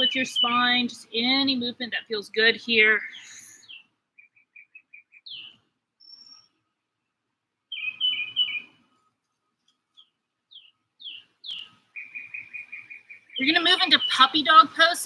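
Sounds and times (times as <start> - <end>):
songbirds chirping and singing: 0.0 - 6.9, 7.6 - 15.0
high bird whistle: 7.7 - 8.8.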